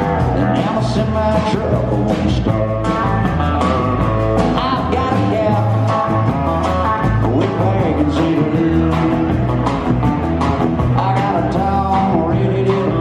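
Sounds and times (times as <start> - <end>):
live country band playing: 0.0 - 13.0
steady drum beat: 0.0 - 13.0.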